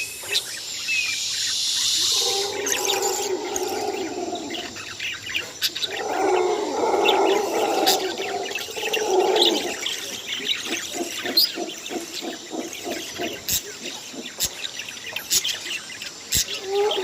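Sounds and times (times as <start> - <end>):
parrots chirping: 1.4 - 17.0
parrot low calls: 5.9 - 13.5, 16.5 - 17.0.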